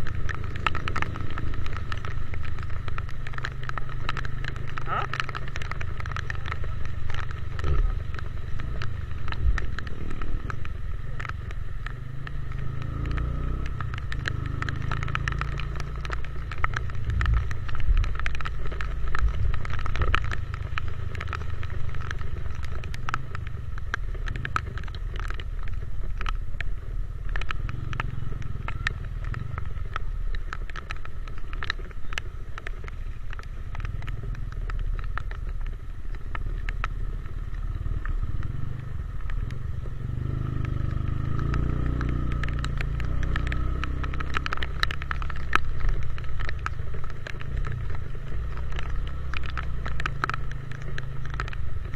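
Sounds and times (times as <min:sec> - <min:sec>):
motorcycle engine running: 0:00.0 - 0:51.9
raindrops ticking on camera: 0:00.0 - 0:51.9.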